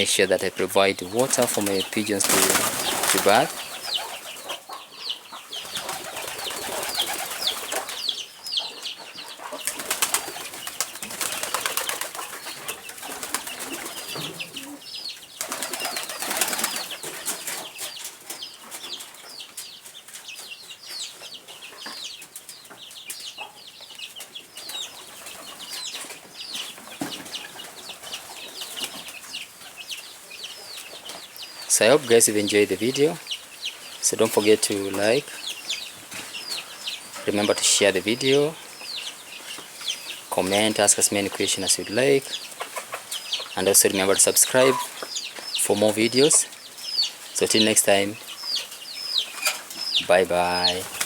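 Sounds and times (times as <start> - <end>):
birds chirping: 0.0 - 51.0
wings flapping: 1.1 - 4.6, 5.5 - 8.0, 9.6 - 17.6, 49.7 - 51.0.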